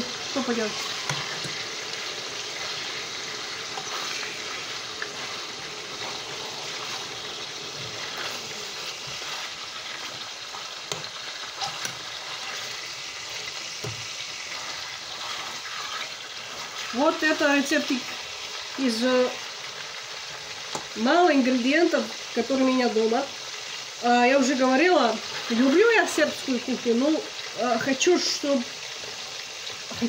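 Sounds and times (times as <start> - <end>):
chicken sizzling in oil: 0.0 - 30.0
metal utensil scraping pot: 0.2 - 1.8, 2.4 - 17.3.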